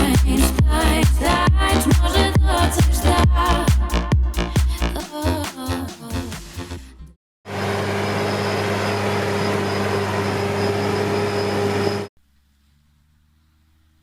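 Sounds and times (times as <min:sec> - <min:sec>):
thin high whine: 0:07.5 - 0:12.1.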